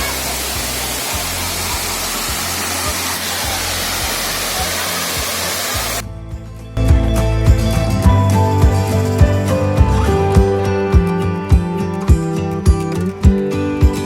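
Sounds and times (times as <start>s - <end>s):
waterfall roaring: 0.0s - 6.0s
background music: 0.0s - 14.0s.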